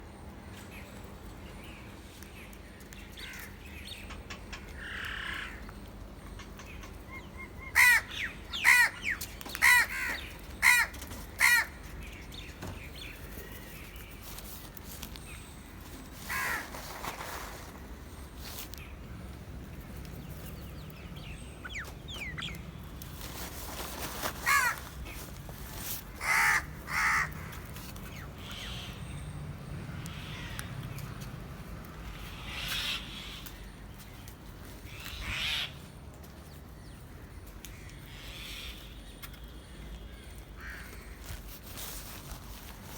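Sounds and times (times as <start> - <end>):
crows cawing: 4.8 - 5.6, 7.7 - 11.9, 16.2 - 16.7, 24.4 - 24.9, 26.2 - 27.7, 40.6 - 41.3.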